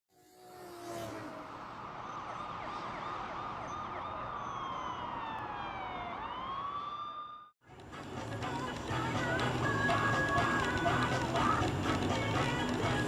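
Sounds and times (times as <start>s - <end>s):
emergency vehicle siren: 0.2s - 7.6s.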